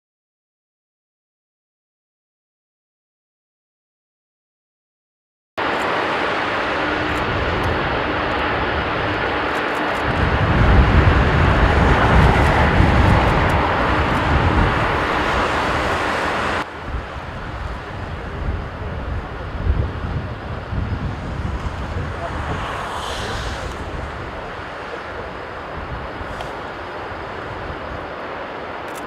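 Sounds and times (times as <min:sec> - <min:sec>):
jet engines roaring: 0:05.6 - 0:29.0.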